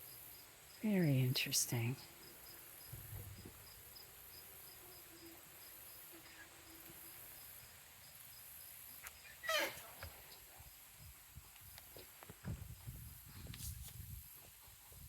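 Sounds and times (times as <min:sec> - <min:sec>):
faint insect chirping: 0:00.0 - 0:15.0
animal call falling in pitch: 0:09.4 - 0:10.0.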